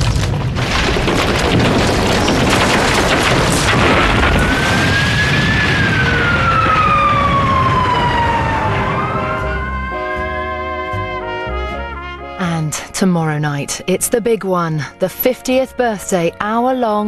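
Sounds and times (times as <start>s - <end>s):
falling wreckage: 0.0s - 9.8s
explosion rumble: 0.0s - 10.2s
siren-like tone: 4.4s - 11.0s
brass music: 8.4s - 16.4s.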